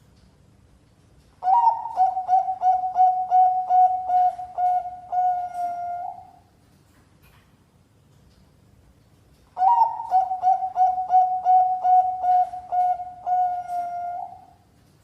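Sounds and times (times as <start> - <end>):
dove cooing: 1.4 - 6.4, 9.6 - 14.6.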